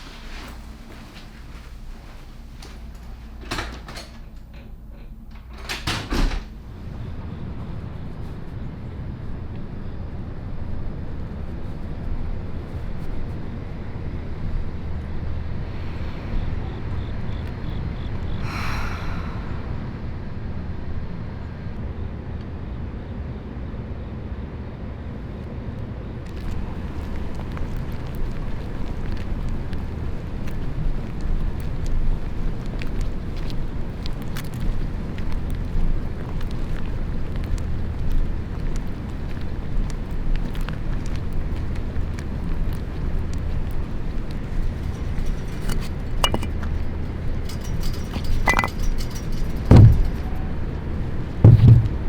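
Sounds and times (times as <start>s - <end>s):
low rumble of vehicle: 6.5s - 52.0s
knocks and clunks: 45.6s - 46.7s, 47.5s - 50.6s, 51.4s - 52.0s
door slamming shut: 49.7s - 50.4s, 51.5s - 52.0s.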